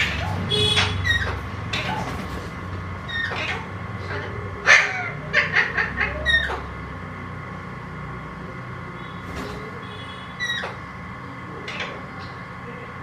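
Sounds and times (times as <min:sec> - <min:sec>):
parakeet call: 0:03.1 - 0:06.8, 0:09.9 - 0:10.8.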